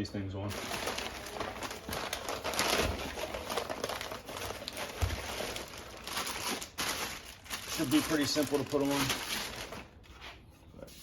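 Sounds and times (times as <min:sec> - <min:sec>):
packaging crinkling and rustling: 0:00.5 - 0:10.1.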